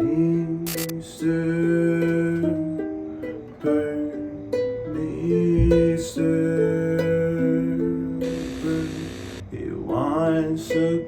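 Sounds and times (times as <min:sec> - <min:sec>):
strummed string instrument chords: 0:01.2 - 0:11.0.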